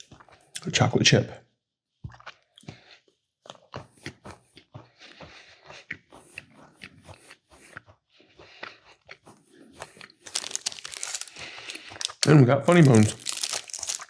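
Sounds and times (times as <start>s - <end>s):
cookie crunching: 10.3s - 14.0s.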